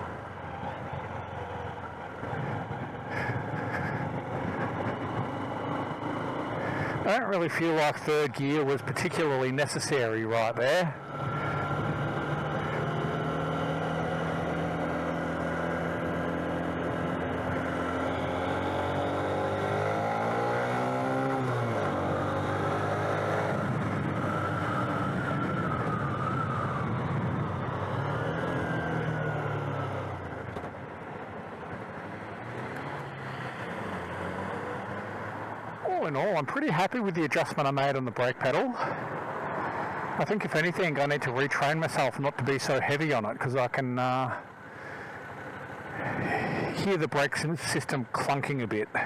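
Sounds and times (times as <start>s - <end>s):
motorised bicycle engine humming: 0.0s - 7.2s.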